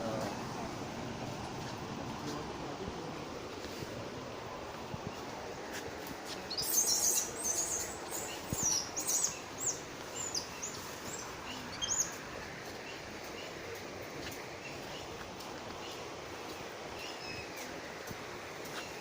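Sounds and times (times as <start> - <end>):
steady background hiss: 0.0 - 19.0
birds chirping: 3.9 - 19.0.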